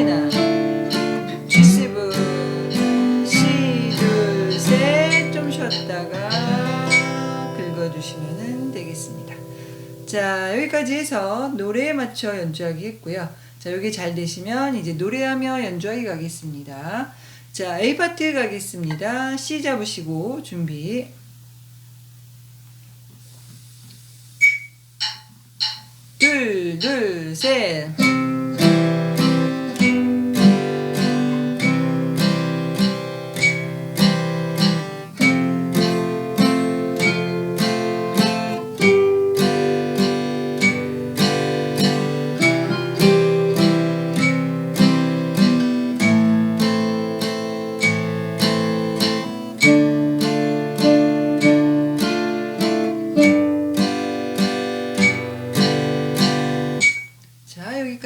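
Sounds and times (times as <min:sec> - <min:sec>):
acoustic guitar strumming waltz: 0:00.0 - 0:12.0, 0:25.1 - 0:57.2.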